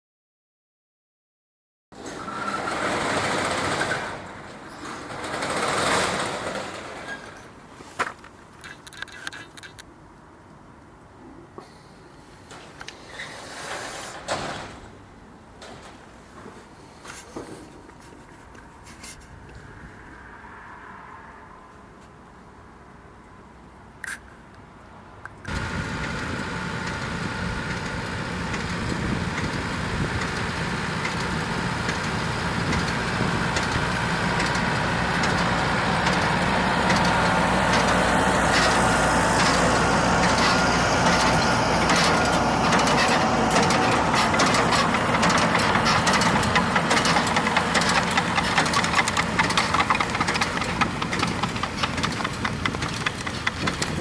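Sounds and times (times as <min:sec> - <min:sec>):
manure spreader clattering: 0:02.0 - 0:07.5, 0:25.5 - 0:54.0
tractor engine running: 0:02.2 - 0:07.6, 0:25.5 - 0:54.0.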